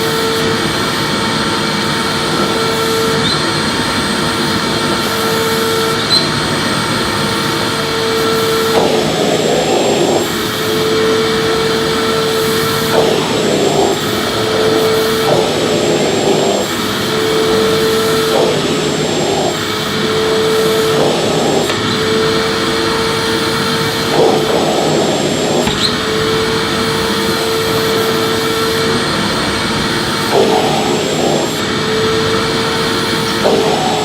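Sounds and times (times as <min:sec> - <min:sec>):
vacuum cleaner whine: 0:00.0 - 0:34.0
rush of air from nozzle: 0:07.1 - 0:29.0, 0:29.7 - 0:34.0.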